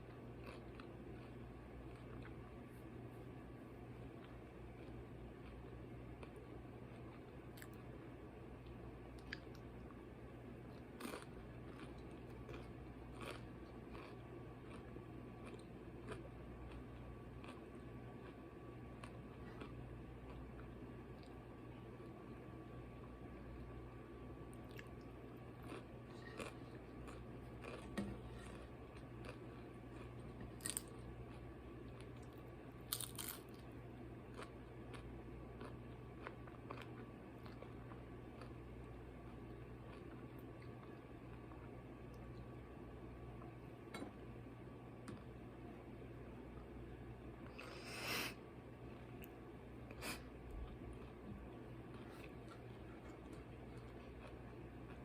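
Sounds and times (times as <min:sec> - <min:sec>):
chewing: 0:00.0 - 0:02.5, 0:04.0 - 0:07.9, 0:10.7 - 0:18.4, 0:19.0 - 0:21.4, 0:24.5 - 0:33.6, 0:34.3 - 0:42.2, 0:50.0 - 0:55.0
low steady hum: 0:00.0 - 0:55.0
soft crunchy bites: 0:10.7 - 0:18.4, 0:24.5 - 0:33.7, 0:34.3 - 0:42.3, 0:50.6 - 0:55.0.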